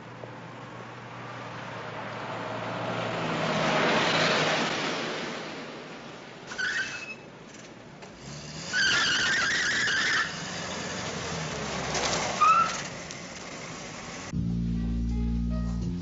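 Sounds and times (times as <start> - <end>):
short rising squeak: 6.5 - 7.3, 8.4 - 10.6, 12.3 - 13.0
tyres squealing: 6.5 - 14.3
music: 14.3 - 16.0.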